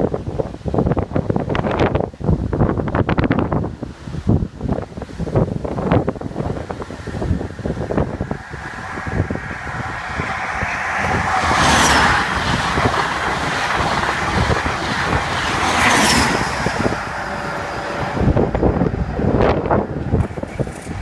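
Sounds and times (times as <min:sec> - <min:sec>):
train wheels rushing on rails: 0:05.2 - 0:21.0.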